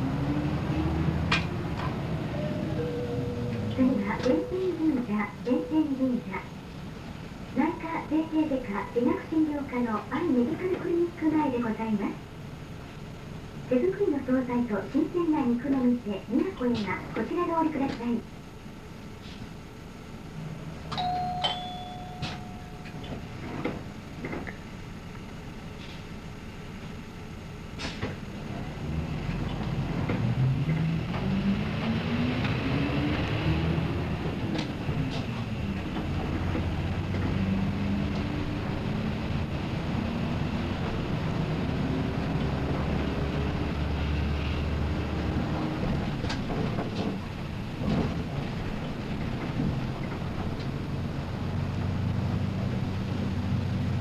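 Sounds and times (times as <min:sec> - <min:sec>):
bus engine: 0:00.0 - 0:54.0
bus doors clicking and clunking: 0:01.2 - 0:05.9, 0:20.9 - 0:24.8, 0:27.8 - 0:28.4, 0:32.4 - 0:38.9, 0:45.6 - 0:51.1
electronic tone: 0:02.3 - 0:03.6.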